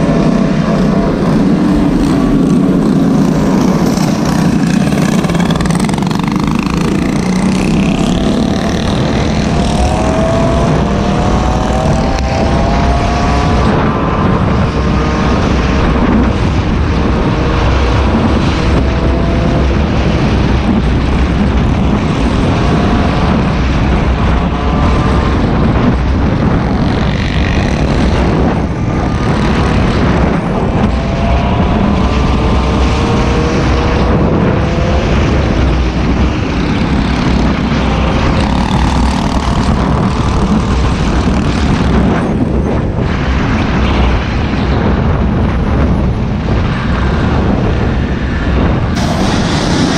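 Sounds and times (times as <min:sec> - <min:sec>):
small engines revving: 0:00.0 - 0:16.2, 0:22.1 - 0:42.6
heavy low rumble: 0:00.0 - 0:49.9.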